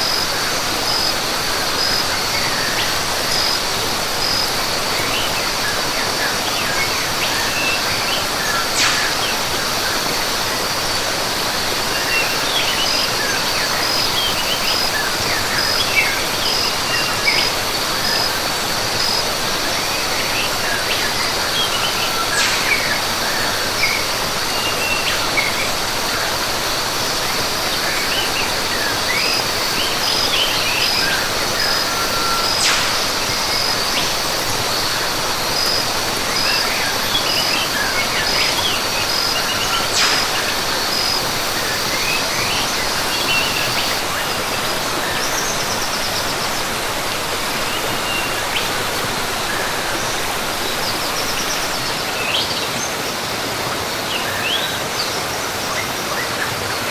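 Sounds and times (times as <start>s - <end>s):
high insect tone: 0.0s - 52.1s
rushing falling water: 0.0s - 56.9s
bird chirps: 6.8s - 10.1s, 20.3s - 25.6s, 28.1s - 34.9s, 35.6s - 44.4s.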